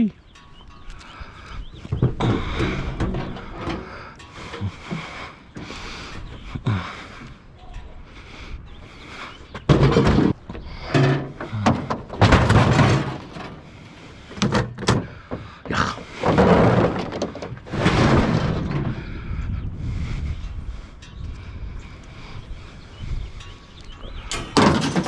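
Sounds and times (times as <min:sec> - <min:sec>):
junk thunking and clanking: 0:00.4 - 0:08.0, 0:08.8 - 0:20.5, 0:24.0 - 0:25.0.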